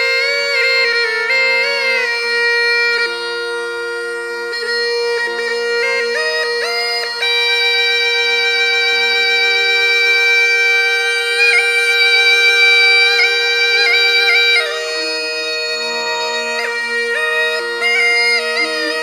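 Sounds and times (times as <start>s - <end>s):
gourd pipe melody over drone: 0.0s - 19.0s.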